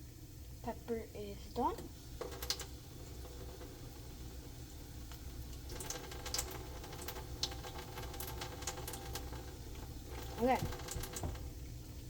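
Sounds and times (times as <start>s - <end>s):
eggs sizzling in a pan: 0.0s - 12.0s.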